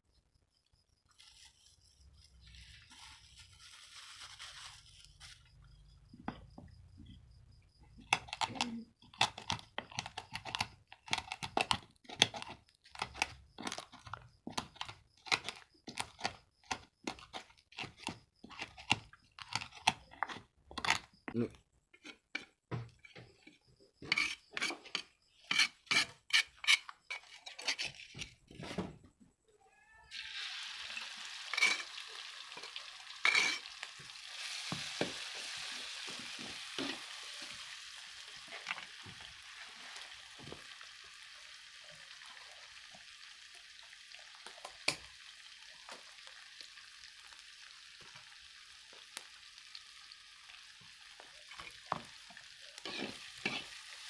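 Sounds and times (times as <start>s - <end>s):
hot oil sizzling in wok: 30.1s - 54.0s.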